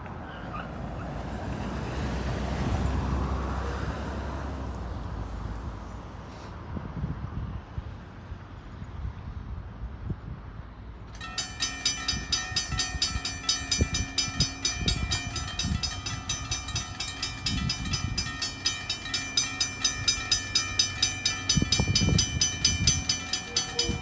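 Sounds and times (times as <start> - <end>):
train rumbling on rails: 0.0 - 6.1, 10.6 - 24.0
rapid metallic ringing: 11.1 - 24.0.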